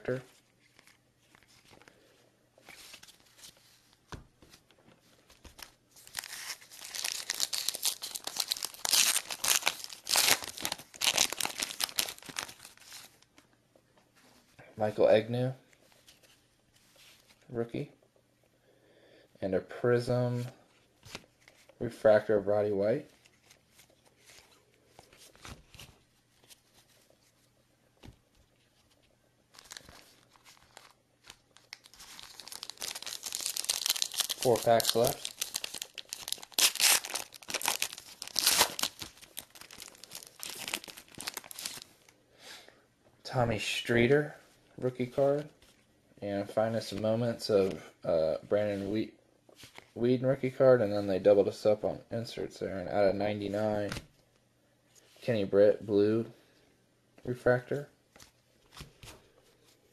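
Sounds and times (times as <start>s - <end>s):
light rustling of card packs: 0.0s - 17.9s, 19.9s - 42.2s, 43.3s - 59.9s
foil wrapper crinkling: 5.4s - 13.2s, 29.5s - 42.1s.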